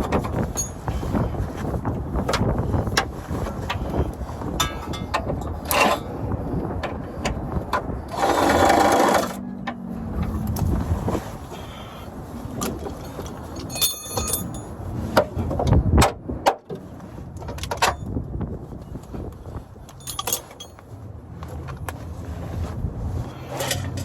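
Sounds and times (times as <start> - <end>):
wrenches clicking and knocking: 0.0 - 1.0, 2.2 - 6.1, 6.8 - 10.7, 12.6 - 16.8, 19.9 - 20.8, 23.5 - 24.0
wind rumbling on microphone: 0.0 - 24.0
ringing metallic clinks: 13.6 - 14.7, 20.0 - 20.8.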